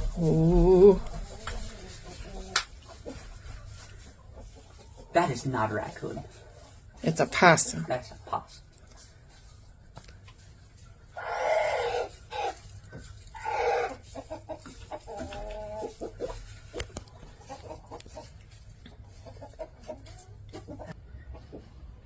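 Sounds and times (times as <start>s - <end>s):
chickens clucking: 0.0s - 22.0s
chicken squawking: 11.1s - 16.5s.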